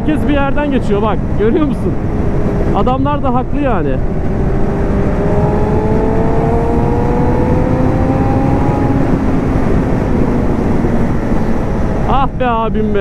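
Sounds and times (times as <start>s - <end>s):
wind noise: 0.0s - 13.0s.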